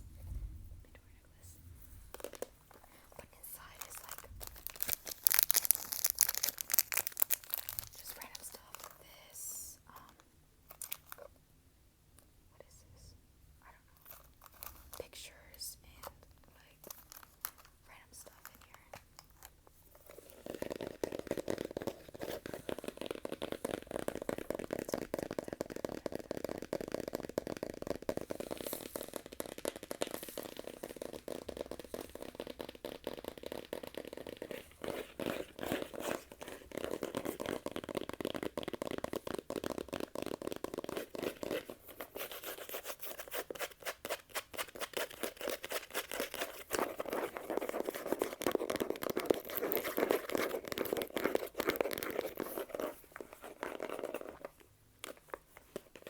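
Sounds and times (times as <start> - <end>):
rustling rubs: 19.4 - 56.0
hands tapping and clicking: 20.3 - 56.0.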